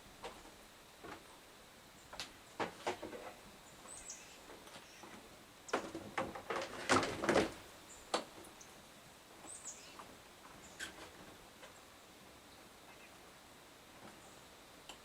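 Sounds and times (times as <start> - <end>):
faint high bird chirps: 3.7 - 5.1, 9.5 - 10.0, 12.8 - 13.2
sharp knocks and clatters: 5.7 - 7.6.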